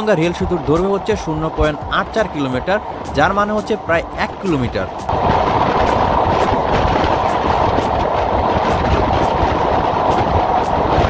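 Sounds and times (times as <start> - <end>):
train wheels rumbling and rattling: 0.0 - 11.0.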